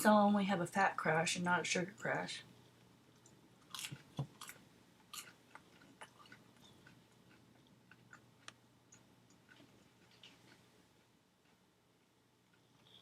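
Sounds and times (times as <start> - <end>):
person chewing: 3.2 - 13.0.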